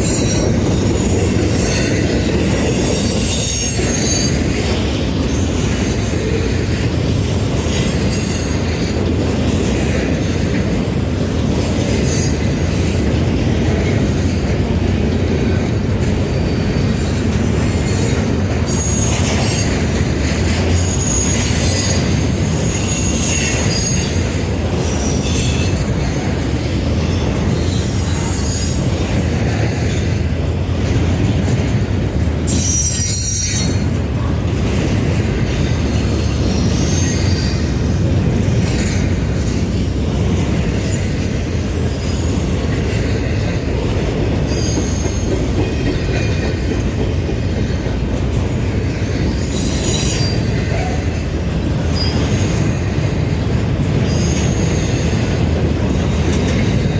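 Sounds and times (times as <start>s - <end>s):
train wheels rumbling on rails: 0.0s - 56.9s
high-pitched wheel squeals: 2.8s - 4.6s, 16.2s - 20.0s, 20.8s - 25.8s, 27.5s - 29.0s, 32.5s - 33.9s, 36.3s - 37.7s, 44.5s - 45.6s, 49.5s - 51.1s.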